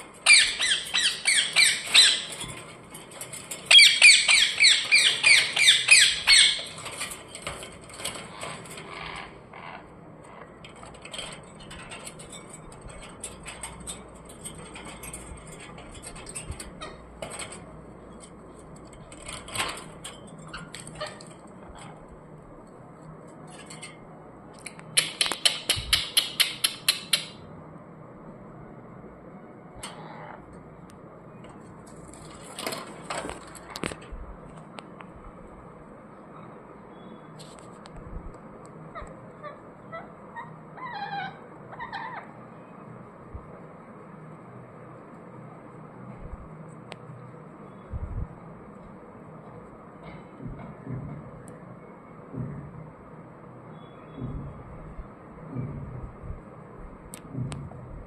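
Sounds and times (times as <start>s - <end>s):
parrots squawking: 0.1s - 2.6s, 3.7s - 7.0s, 8.4s - 10.5s, 29.8s - 30.5s, 38.9s - 42.4s.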